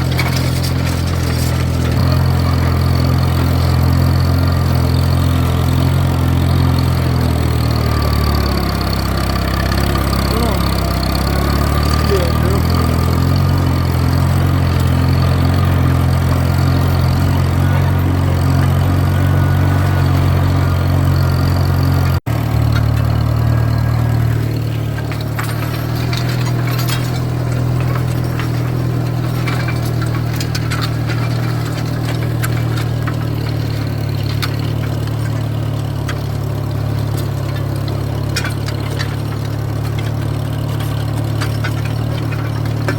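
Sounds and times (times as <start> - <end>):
metallic clinks and rattles: 0.0 - 19.5, 22.6 - 42.9
tractor engine running: 0.0 - 42.9.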